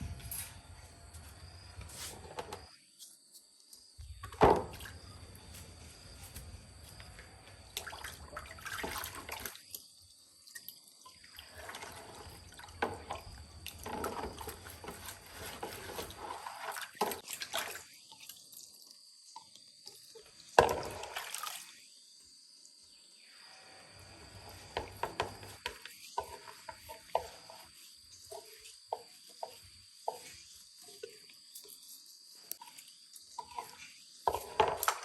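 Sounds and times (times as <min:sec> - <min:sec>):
water splashing and dripping: 0:06.4 - 0:21.8.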